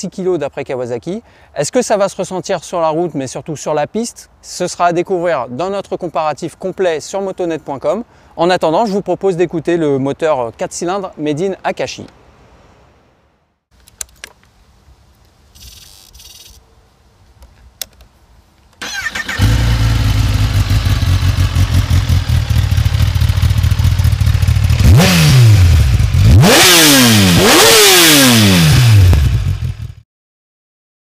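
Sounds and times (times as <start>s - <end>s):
motorcycle engine idling and revving: 18.8s - 30.0s.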